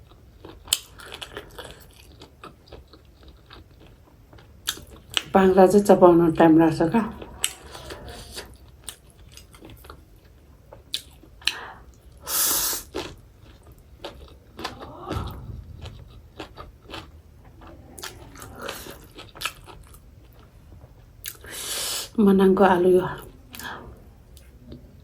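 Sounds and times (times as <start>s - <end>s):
close chewing with crunches: 0.0s - 22.2s.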